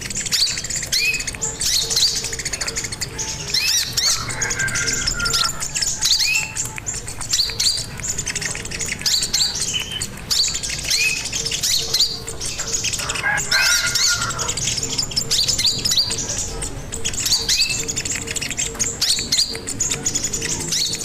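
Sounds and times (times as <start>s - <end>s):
songbird singing rapid chirps: 0.0s - 21.0s.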